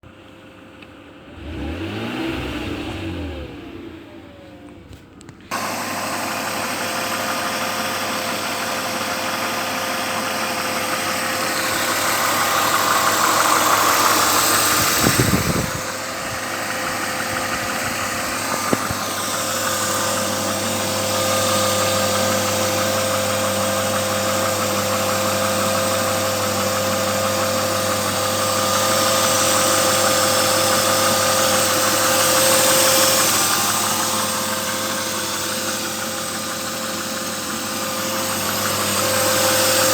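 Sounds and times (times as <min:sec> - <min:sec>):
car engine idling with whine: 0:00.0 - 0:39.9.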